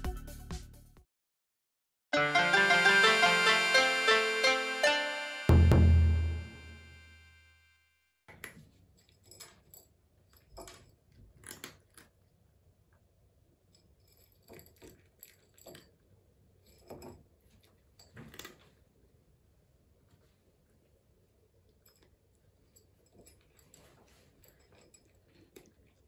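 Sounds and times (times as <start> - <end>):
cat crunching kibble: 10.7 - 12.5, 24.6 - 26.0.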